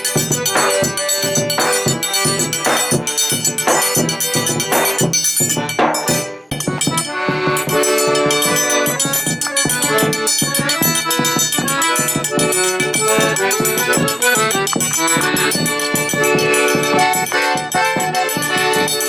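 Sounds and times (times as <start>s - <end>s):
accordion melody: 0.0s - 19.0s
quick percussion beat: 0.0s - 19.0s.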